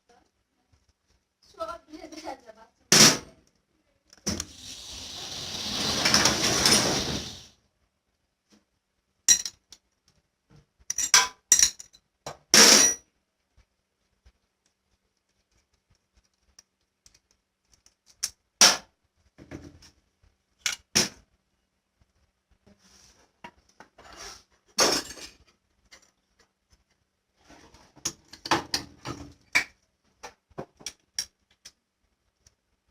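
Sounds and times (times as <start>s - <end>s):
hiss: 4.3s - 7.6s.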